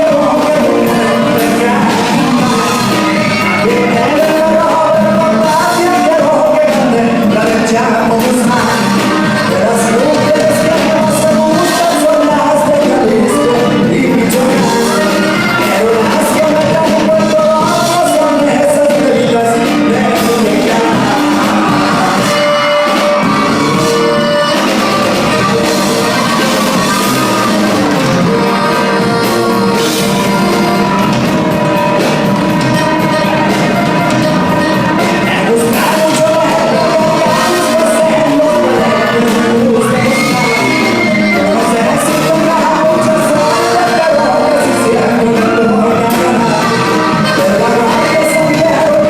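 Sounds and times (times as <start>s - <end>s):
live band music with singing: 0.0s - 49.0s
people shouting: 20.0s - 49.0s.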